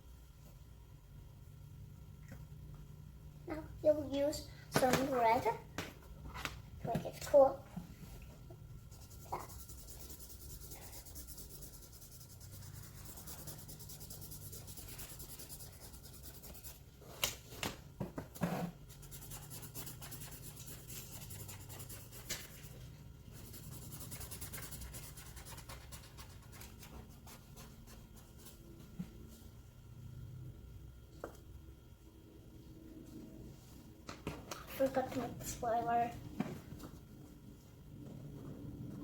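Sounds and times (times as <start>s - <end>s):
drawing tool rubbing on paper: 8.8s - 16.8s, 18.4s - 28.6s.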